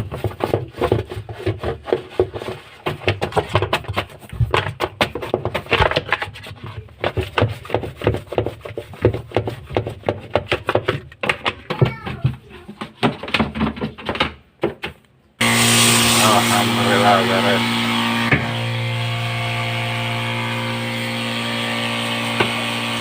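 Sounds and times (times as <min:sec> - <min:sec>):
brush scrubbing in rasping strokes: 0:00.0 - 0:03.1, 0:06.2 - 0:10.5, 0:15.4 - 0:18.2.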